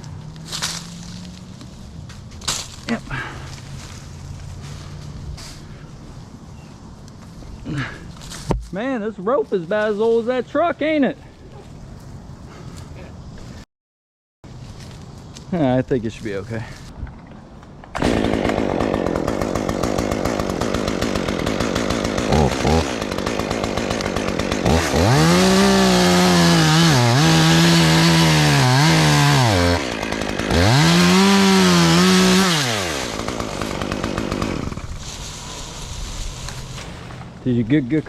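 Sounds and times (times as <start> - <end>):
chainsaw cutting wood: 17.9 - 37.3
chainsaw idling and revving: 18.0 - 36.7.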